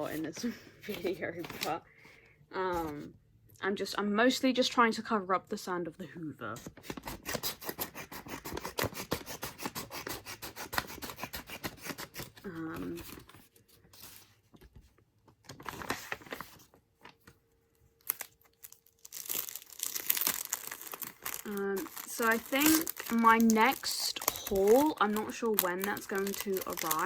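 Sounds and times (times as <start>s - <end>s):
packaging tearing and crinkling: 6.7s - 13.3s, 17.9s - 27.0s.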